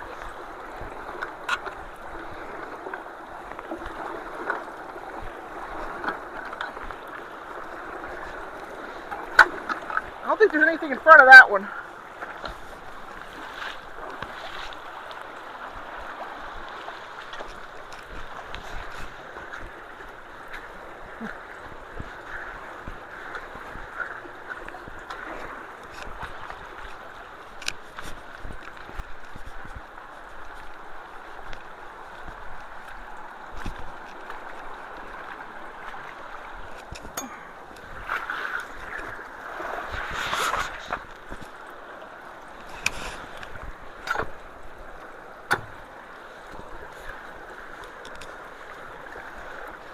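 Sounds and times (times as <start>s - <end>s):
creek water rushing: 0.0s - 49.9s
faint ticks: 25.8s - 34.7s, 47.8s - 48.4s.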